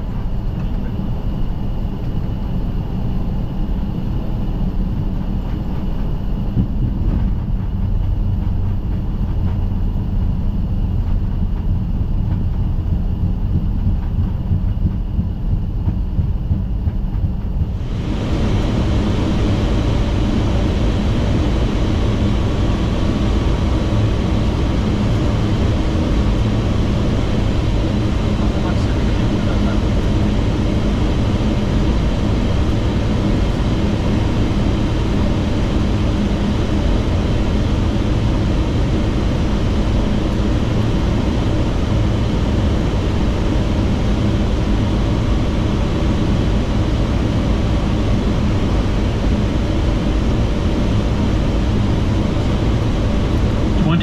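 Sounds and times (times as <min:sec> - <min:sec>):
aircraft engine and airframe rumble: 0:00.0 - 0:54.0
rush of air: 0:17.6 - 0:25.4
faint high whine: 0:17.6 - 0:54.0.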